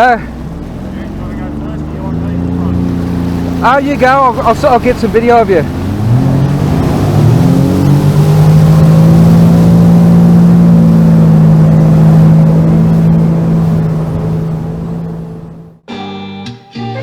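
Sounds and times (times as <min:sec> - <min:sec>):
personal watercraft engine revving: 0:00.0 - 0:15.9.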